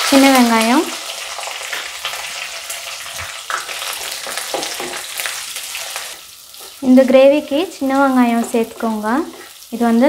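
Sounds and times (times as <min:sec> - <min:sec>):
onions sizzling in hot oil: 0:00.0 - 0:10.0
wooden spatula knocking pan: 0:04.3 - 0:05.1.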